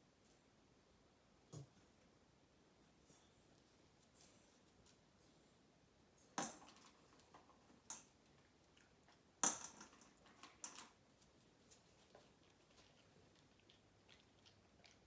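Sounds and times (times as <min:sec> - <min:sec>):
dog chewing crunchy food: 0:12.1 - 0:15.0.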